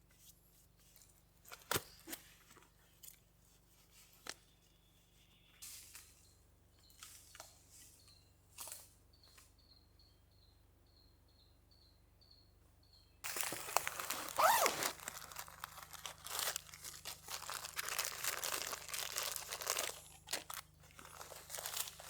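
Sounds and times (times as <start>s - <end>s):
faint bird chirps: 4.1s - 13.2s
material rustling and crinkling: 13.2s - 22.0s.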